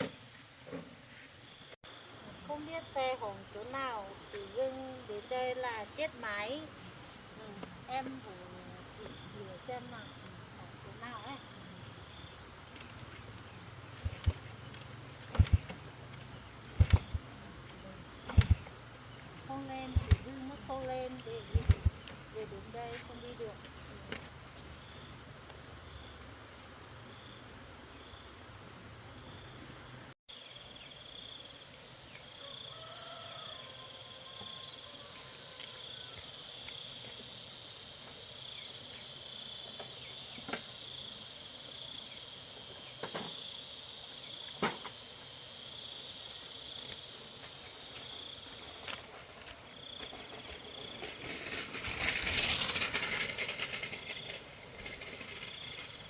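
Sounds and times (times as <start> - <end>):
insects chirping: 0.0 - 56.0
rustling noise: 12.7 - 15.8, 47.4 - 56.0.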